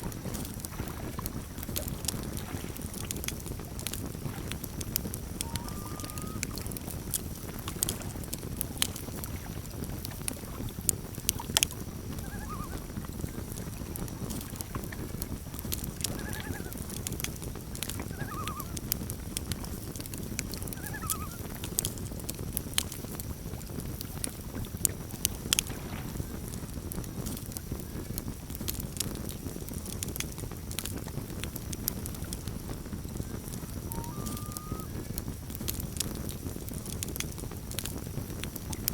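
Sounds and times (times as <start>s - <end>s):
campfire crackling and popping: 0.0s - 38.9s
faint animal calls: 5.4s - 6.8s, 12.1s - 12.9s, 16.1s - 16.9s, 17.9s - 18.9s, 20.7s - 21.5s, 33.7s - 35.0s.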